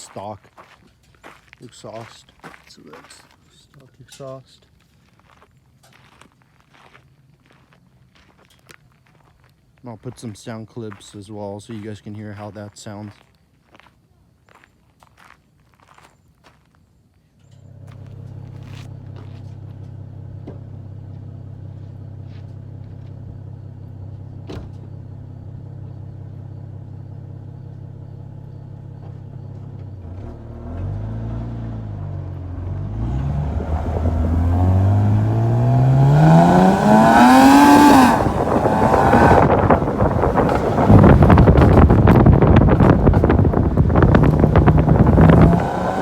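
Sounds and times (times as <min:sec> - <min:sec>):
car engine idling and revving: 0:17.5 - 0:46.0.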